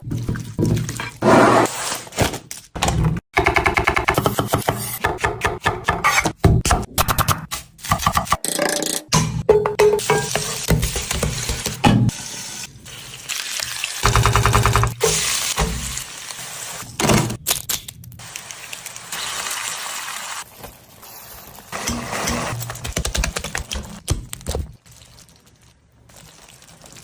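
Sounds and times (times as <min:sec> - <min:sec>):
food sizzling in a pan: 0:18.2 - 0:21.5.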